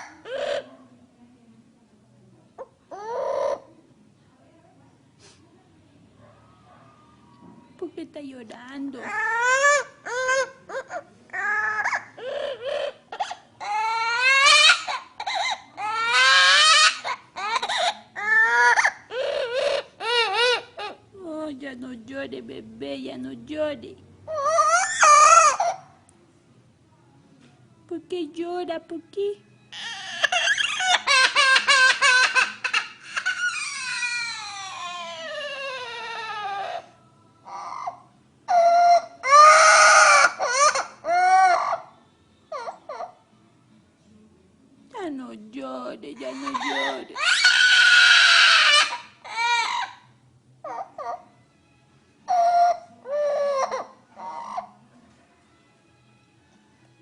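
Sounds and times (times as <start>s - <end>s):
bird mimicking baby crying: 0.0s - 0.7s, 2.6s - 3.7s, 9.0s - 21.1s, 24.3s - 26.0s, 29.7s - 43.3s, 46.2s - 51.4s, 52.2s - 54.8s.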